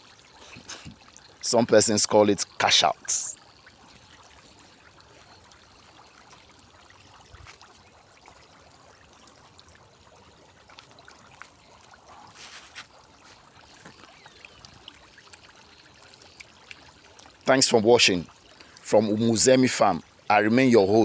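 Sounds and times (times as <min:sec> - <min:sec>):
water trickling: 0:00.0 - 0:21.0
small ticks: 0:12.8 - 0:17.3.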